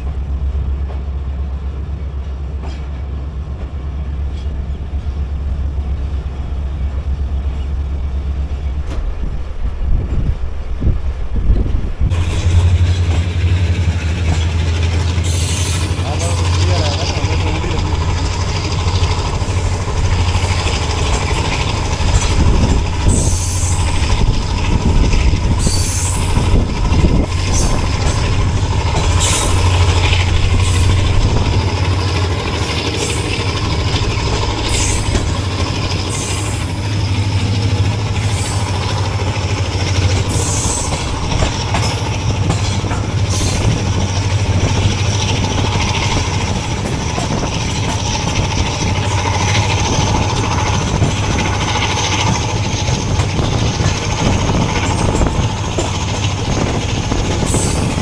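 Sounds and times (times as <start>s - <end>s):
locomotive engine drone: 0.0s - 58.0s
train wheels rumbling on rail: 0.0s - 58.0s.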